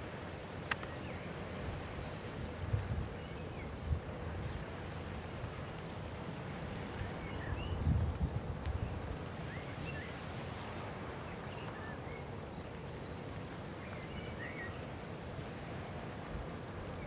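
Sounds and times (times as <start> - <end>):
small birds chirping: 5.7 - 16.0.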